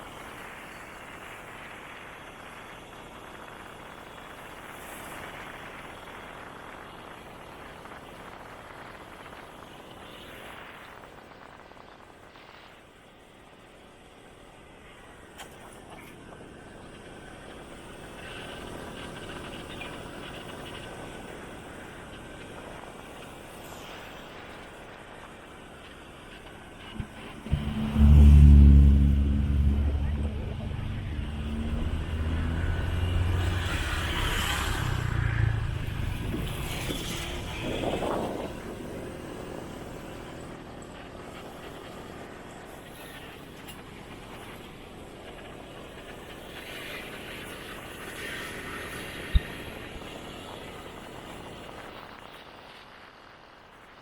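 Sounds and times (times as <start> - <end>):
wind and road noise: 0.0 - 54.0
motorcycle engine: 26.8 - 37.6.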